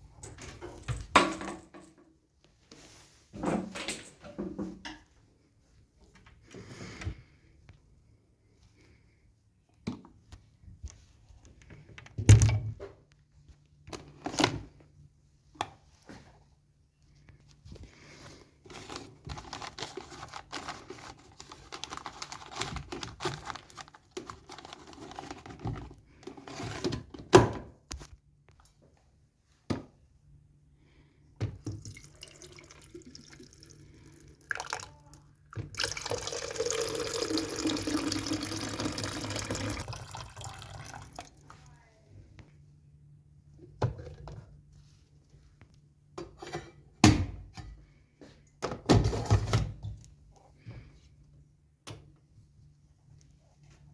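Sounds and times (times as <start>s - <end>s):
running water: 35.7s - 41.4s.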